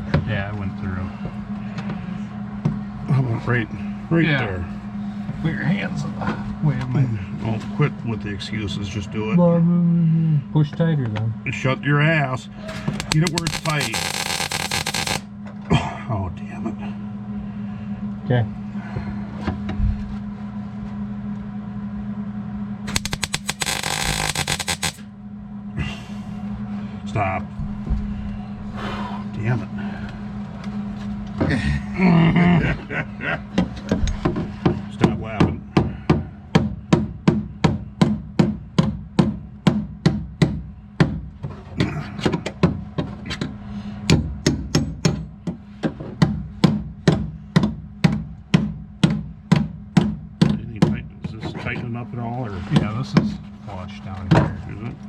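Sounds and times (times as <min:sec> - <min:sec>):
steady low hum: 0:00.0 - 0:55.0
welding arc crackling: 0:12.7 - 0:15.3, 0:22.9 - 0:25.1.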